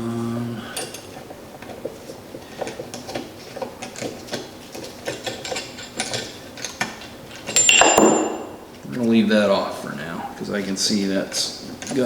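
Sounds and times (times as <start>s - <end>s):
metal tools clicking and tapping: 0.8s - 8.8s, 11.6s - 12.0s
metal clang ringing: 7.5s - 8.7s.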